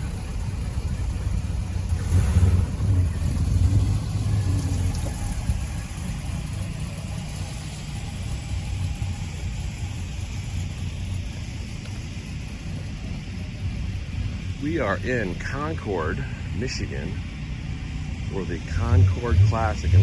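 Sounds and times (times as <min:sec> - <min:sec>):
car engine rumbling: 0:00.0 - 0:20.0.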